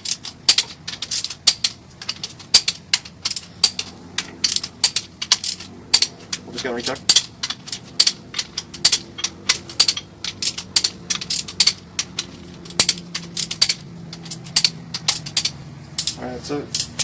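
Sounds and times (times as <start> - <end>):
torque wrench clicking: 0.0 - 17.0.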